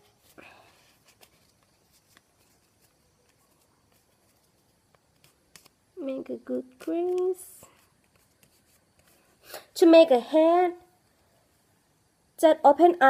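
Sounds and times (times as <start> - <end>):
paper being folded: 0.0 - 9.3.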